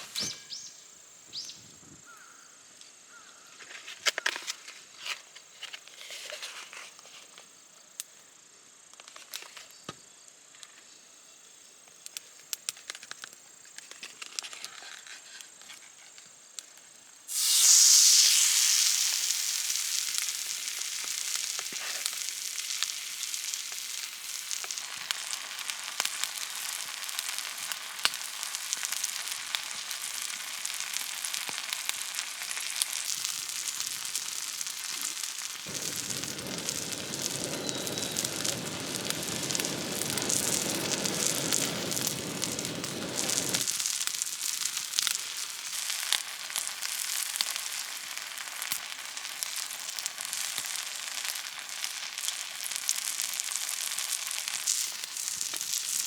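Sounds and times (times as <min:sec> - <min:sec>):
meat sizzling on griddle: 0:16.5 - 0:56.0.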